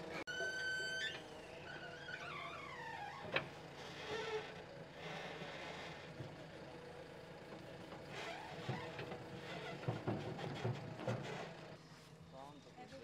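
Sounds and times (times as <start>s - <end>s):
knocks and clatters: 7.5s - 11.6s.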